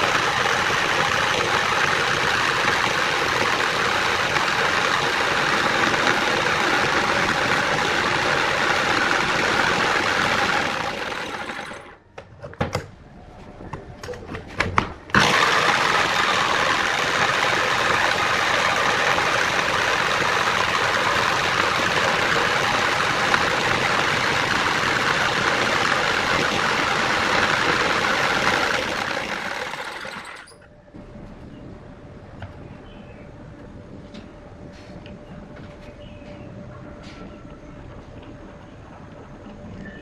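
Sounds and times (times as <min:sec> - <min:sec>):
power tool running: 0:00.0 - 0:12.0, 0:15.1 - 0:30.7.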